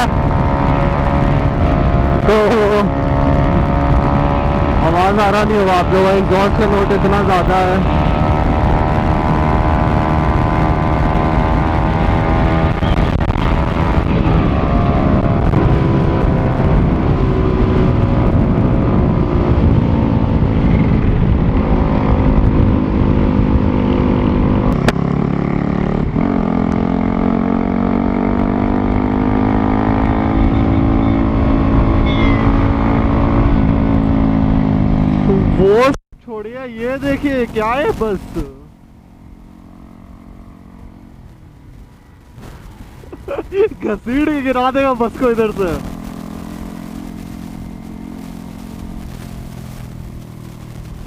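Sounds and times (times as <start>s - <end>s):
wind on microphone: 0.0s - 5.8s, 6.8s - 35.6s, 45.0s - 51.0s
motorcycle exhaust note: 0.0s - 35.9s, 36.8s - 51.0s.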